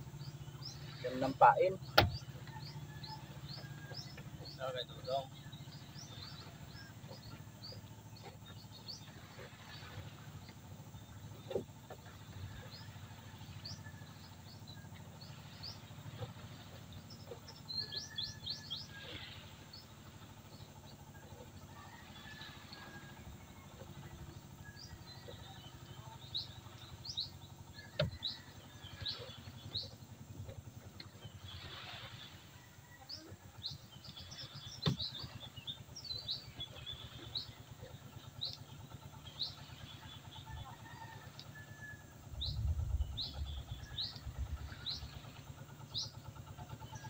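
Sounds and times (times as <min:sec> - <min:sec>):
small birds chirping: 0:00.0 - 0:21.7, 0:23.8 - 0:31.7, 0:33.0 - 0:47.0.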